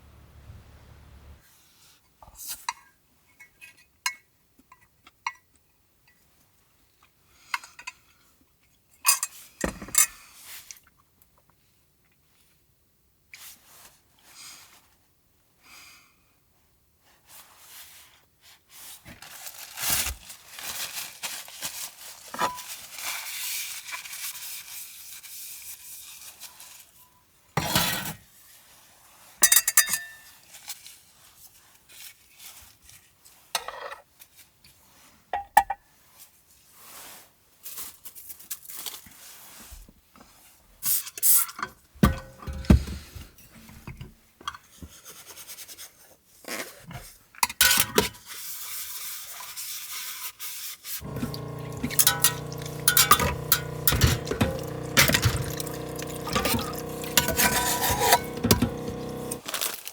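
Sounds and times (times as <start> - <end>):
packaging rustling and tearing: 19.2 - 24.1, 59.4 - 59.9
dishes and utensils clinking: 51.0 - 59.4.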